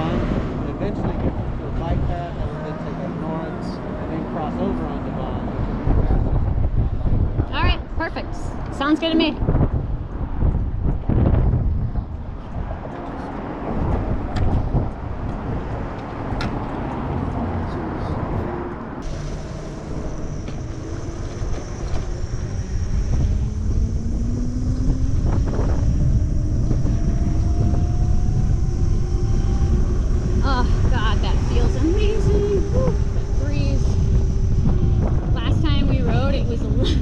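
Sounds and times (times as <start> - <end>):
wind on microphone: 0.0 - 37.0
electric motor whine: 19.0 - 36.8.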